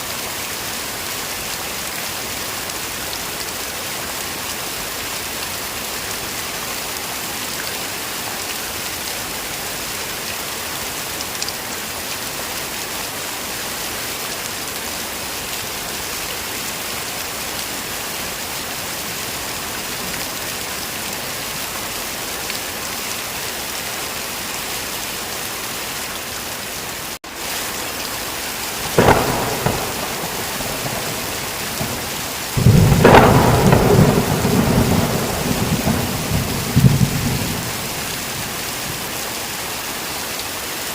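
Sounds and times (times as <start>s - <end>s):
heavy rain: 0.0s - 40.9s
thunderclaps cracking: 28.7s - 39.0s
low rumble of thunder: 28.8s - 39.0s.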